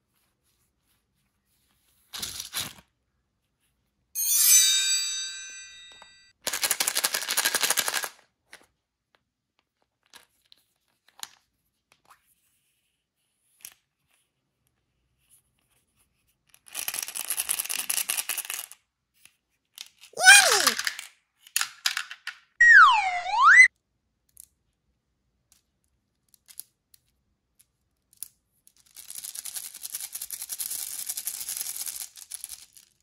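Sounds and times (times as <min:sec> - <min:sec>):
candies rattling in plastic container: 0:06.5 - 0:08.2
falling whistle-like tone: 0:22.6 - 0:23.7
swooping tone: 0:22.6 - 0:23.7.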